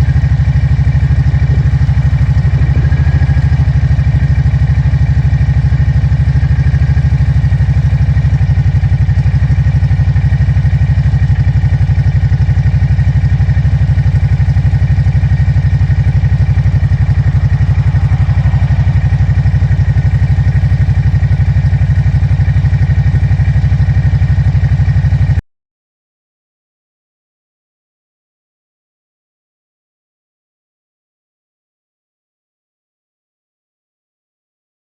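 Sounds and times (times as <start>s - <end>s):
atv engine idling: 0.0s - 25.4s.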